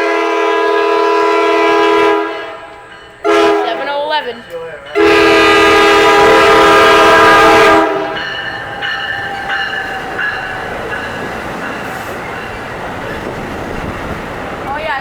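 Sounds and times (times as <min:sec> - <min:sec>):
train horn: 0:00.0 - 0:12.3
train rumble: 0:00.0 - 0:15.0
wheels squealing: 0:06.6 - 0:15.0.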